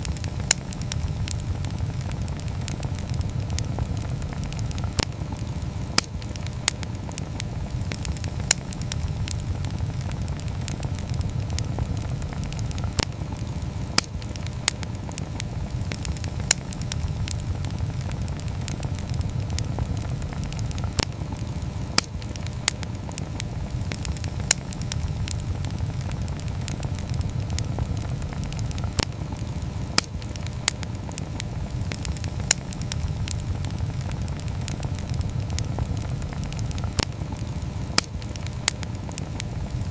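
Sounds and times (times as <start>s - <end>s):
campfire flame rumble: 0.0s - 39.9s
fire crackling and popping: 0.0s - 39.9s.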